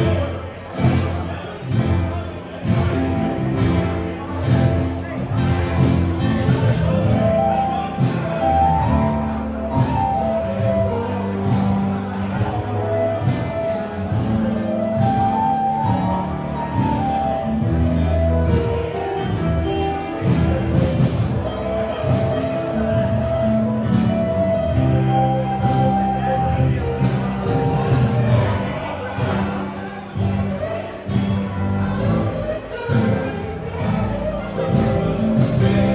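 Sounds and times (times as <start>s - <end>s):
bass line: 0.0s - 35.9s
drums keeping a steady beat: 0.0s - 35.9s.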